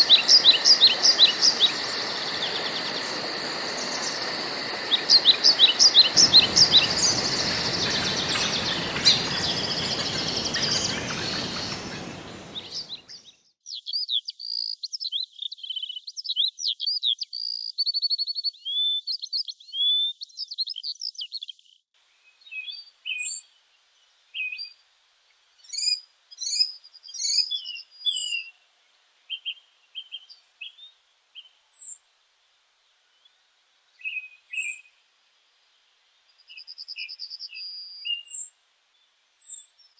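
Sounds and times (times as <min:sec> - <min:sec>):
forest ambience hiss: 0:00.0 - 0:13.3, 0:22.0 - 0:39.9
songbirds chirping and warbling: 0:00.0 - 0:17.8, 0:25.6 - 0:39.9.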